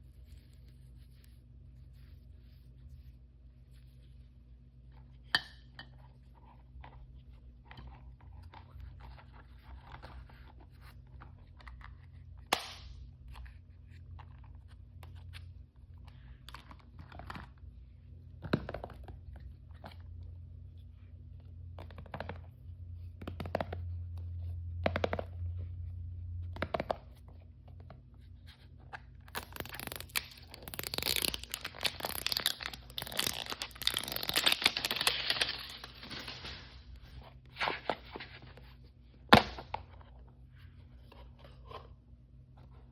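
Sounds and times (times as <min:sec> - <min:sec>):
plastic packaging crinkling: 0:29.2 - 0:37.8
wrapper tearing: 0:29.3 - 0:37.0.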